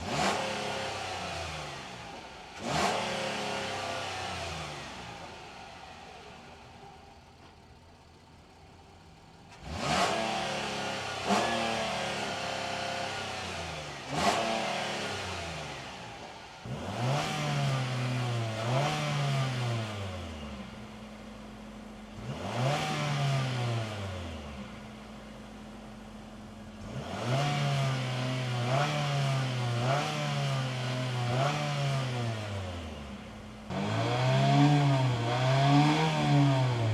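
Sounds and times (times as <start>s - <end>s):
car engine idling and revving: 0.0s - 36.9s.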